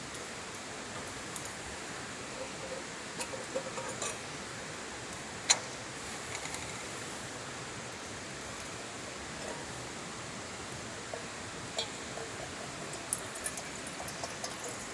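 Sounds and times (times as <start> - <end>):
campfire hissing: 4.2 - 14.0.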